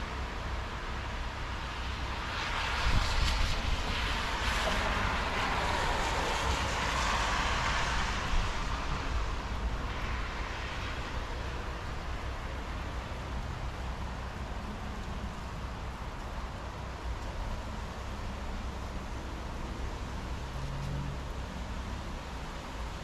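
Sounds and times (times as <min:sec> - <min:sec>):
thunderstorm hiss and rumble: 0:00.0 - 0:23.0
wind on microphone: 0:02.7 - 0:18.3.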